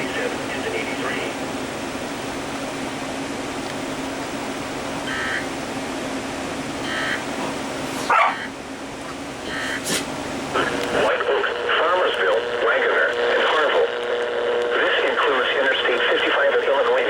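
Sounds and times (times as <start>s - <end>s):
steady hiss and low hum: 0.0s - 17.0s
dog barking: 8.0s - 8.5s.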